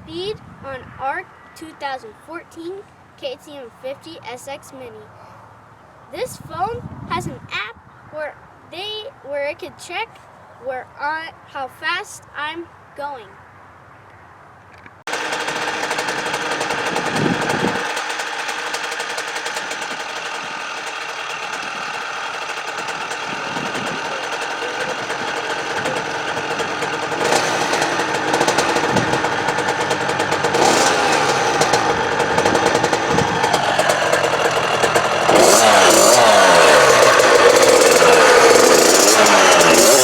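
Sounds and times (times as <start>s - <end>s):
dirt bike engine revving: 15.1s - 40.0s.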